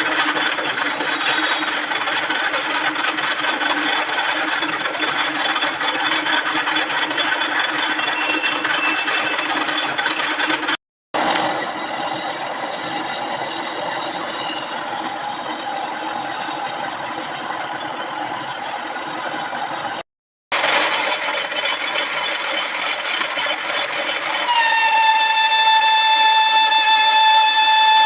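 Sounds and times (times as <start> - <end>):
high-pitched squeal: 0.0 - 18.5, 24.3 - 28.0
metal lathe cutting steel: 0.0 - 20.0, 20.6 - 28.0.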